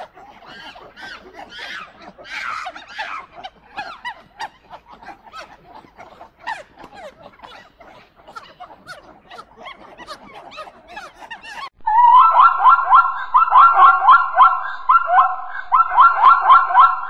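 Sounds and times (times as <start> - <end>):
monkeys squeaky chatter: 0.0 - 11.7
zebra barking calls: 0.0 - 12.6.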